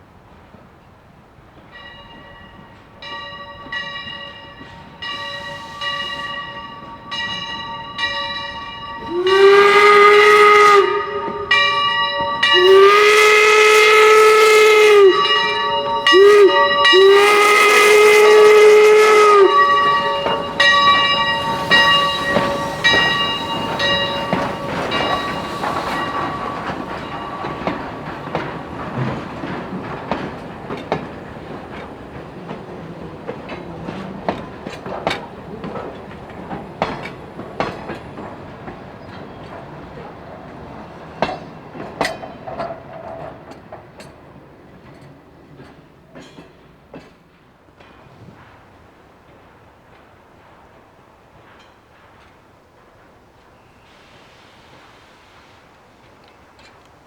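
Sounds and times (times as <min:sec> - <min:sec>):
wheels clicking over rail joints: 0:01.5 - 0:53.7, 0:56.0 - 0:57.0
locomotive bell ringing: 0:01.7 - 0:40.1
steam whistle blasts: 0:05.0 - 0:07.2, 0:09.0 - 0:27.8.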